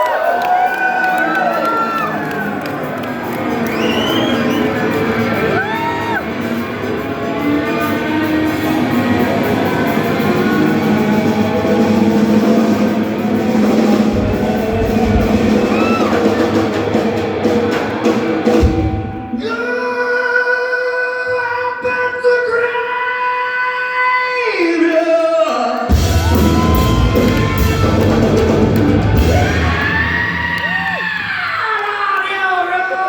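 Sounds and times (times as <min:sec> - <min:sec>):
high whistles: 0:03.6 - 0:06.2
heavy drum hit: 0:08.8 - 0:19.3, 0:25.9 - 0:30.5
live rock band: 0:25.9 - 0:31.0.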